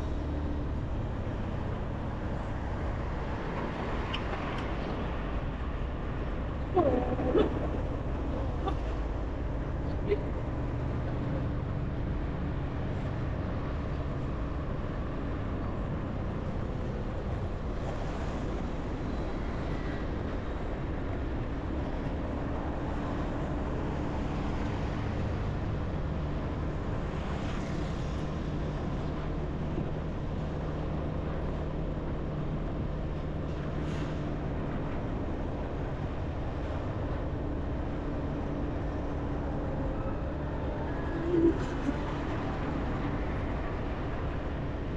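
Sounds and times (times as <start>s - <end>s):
road noise rushing: 0.0s - 15.0s.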